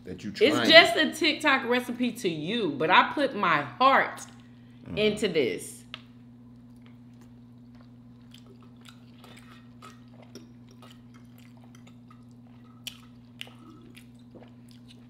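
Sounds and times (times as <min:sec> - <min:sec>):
steady low hum: 0:00.0 - 0:15.0
chewing with mouth clicks: 0:05.9 - 0:15.0.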